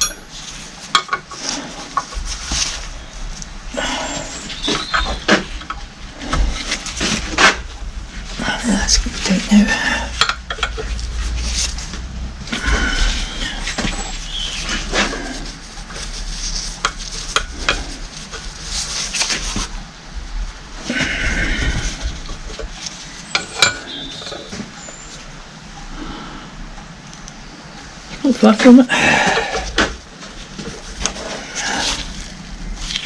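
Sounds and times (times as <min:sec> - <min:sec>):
metal tools clinking on a bench: 0:00.0 - 0:01.2.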